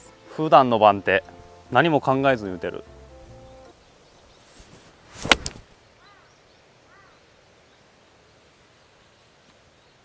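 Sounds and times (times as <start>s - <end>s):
faint open-air ambience: 0.0s - 10.0s
short arched bird calls: 5.9s - 7.4s.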